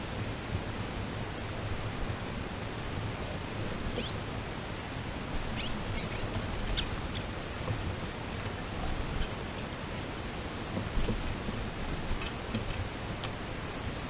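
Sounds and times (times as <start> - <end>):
steady hiss: 0.0 - 14.0
high rising bird chirps: 4.0 - 4.2, 5.6 - 7.2.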